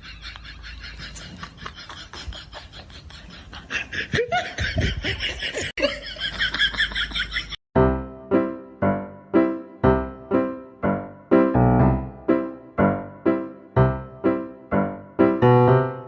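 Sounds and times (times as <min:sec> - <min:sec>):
people laughing: 0:00.0 - 0:07.6.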